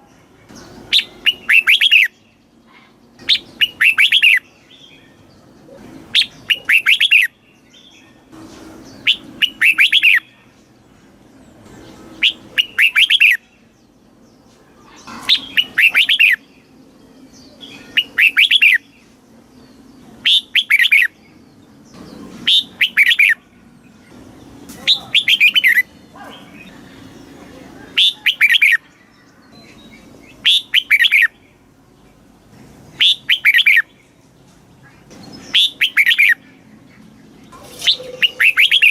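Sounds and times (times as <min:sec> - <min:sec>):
bird singing whistled phrase: 0:12.2 - 0:13.4, 0:15.5 - 0:16.4, 0:18.0 - 0:18.8, 0:35.5 - 0:36.4.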